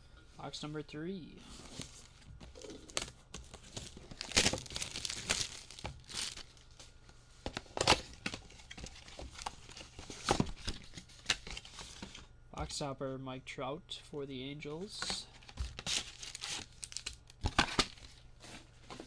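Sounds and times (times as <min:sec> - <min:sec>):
packaging torn and crinkled: 0:01.6 - 0:06.7, 0:15.4 - 0:18.2.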